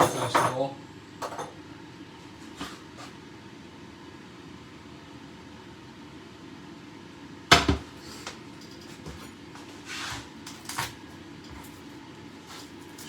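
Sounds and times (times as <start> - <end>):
sharp knock in kitchen: 7.5 - 7.9.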